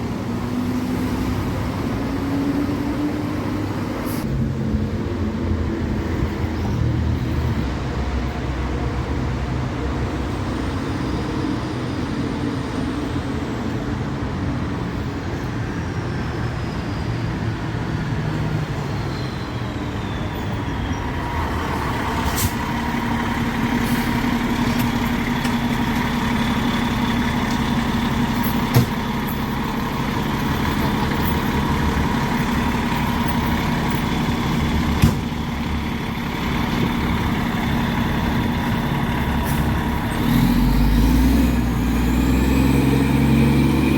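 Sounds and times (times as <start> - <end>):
diesel engine running: 20.4 - 43.9.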